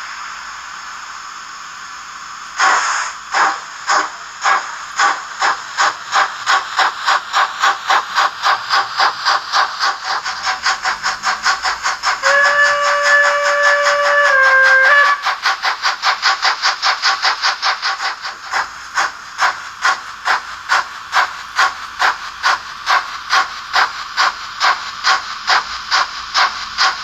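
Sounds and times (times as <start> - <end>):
steam hiss: 0.0 - 27.0
steam locomotive chuffing: 0.0 - 27.0
steam whistle: 12.1 - 15.4.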